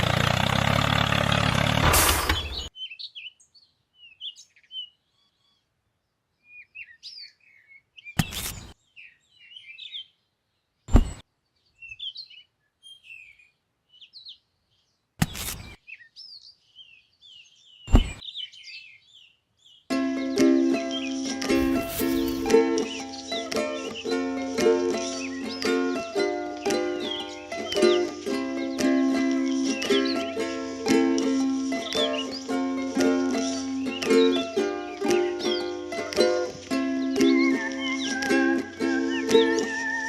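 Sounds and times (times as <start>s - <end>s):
small birds chirping: 2.2s - 40.0s.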